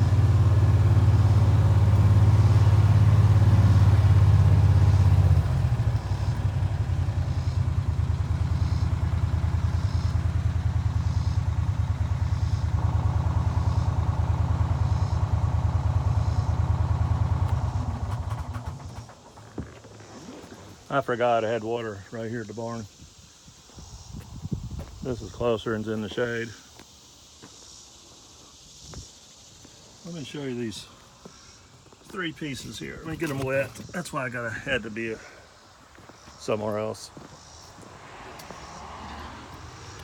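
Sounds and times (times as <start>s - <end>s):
small vehicle engine running: 0.0s - 20.4s.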